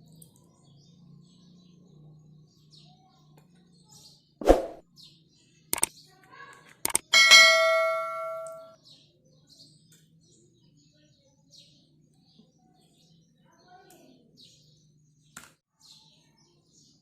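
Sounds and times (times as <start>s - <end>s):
birds chirping: 6.8s - 15.3s
metal dishware clinking: 7.1s - 8.7s.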